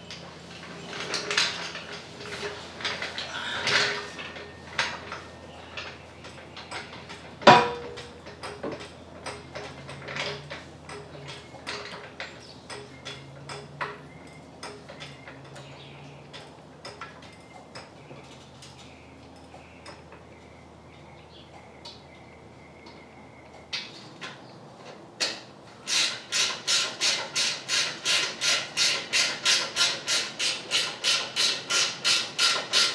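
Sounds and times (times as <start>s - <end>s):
hand tools clicking and clinking: 0.9s - 20.2s, 23.8s - 32.9s
loud metal clank: 7.4s - 8.2s.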